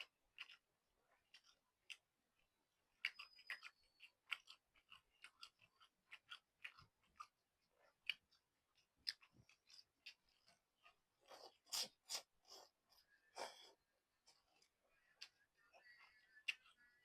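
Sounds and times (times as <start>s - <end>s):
chewing noodles mouth smacks: 0.0s - 2.0s, 3.0s - 12.7s.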